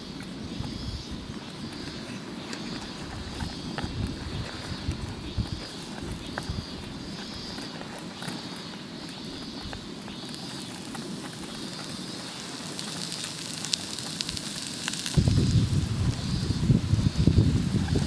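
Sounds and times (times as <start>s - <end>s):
wind rumble on microphone: 0.0s - 8.0s, 13.2s - 18.0s
campfire crackling: 0.0s - 18.0s
sharp pops: 9.4s - 16.5s.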